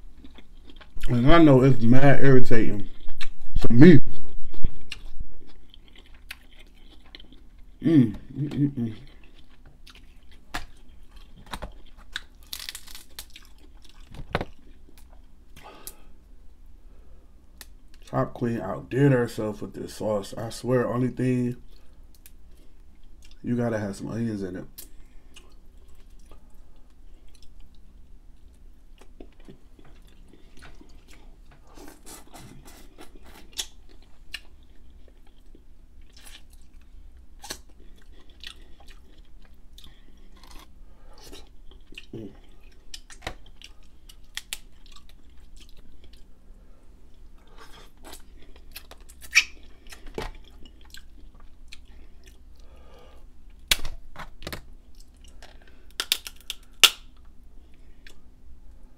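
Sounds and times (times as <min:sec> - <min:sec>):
chewing crab meat: 0:00.0 - 0:01.2, 0:04.5 - 0:16.0, 0:24.8 - 0:46.5, 0:47.1 - 0:53.8
crab shells cracking: 0:11.4 - 0:14.5, 0:43.0 - 0:45.2, 0:53.6 - 0:57.2.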